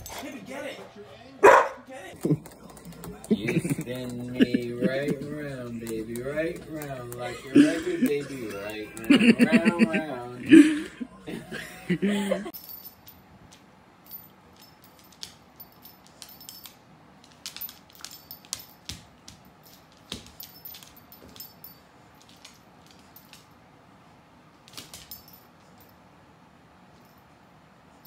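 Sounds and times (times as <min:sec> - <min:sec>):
dog claws clicking on wooden floor: 0:02.2 - 0:07.4, 0:08.0 - 0:09.2, 0:14.8 - 0:23.5
light metallic jingles: 0:12.5 - 0:13.3, 0:14.0 - 0:16.8, 0:19.4 - 0:23.5, 0:25.0 - 0:26.0.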